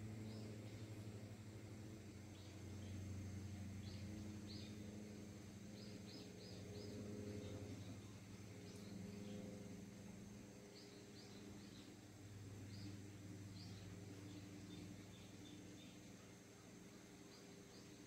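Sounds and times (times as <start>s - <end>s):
faint low hum: 0.0s - 18.0s
bird chirping: 3.8s - 4.9s, 10.7s - 12.0s, 12.6s - 18.0s.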